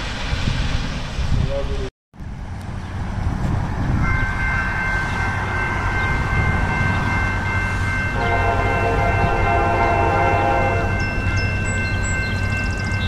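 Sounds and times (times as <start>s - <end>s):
diesel locomotives rumbling: 0.0s - 13.0s
train horn high notes: 8.1s - 11.0s
train horn low chord: 8.1s - 11.1s.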